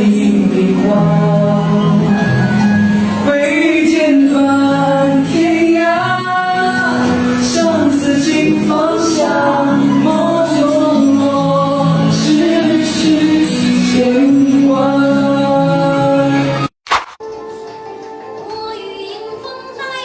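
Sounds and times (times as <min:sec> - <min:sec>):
person singing: 0:00.0 - 0:16.7
musical accompaniment: 0:00.0 - 0:20.0.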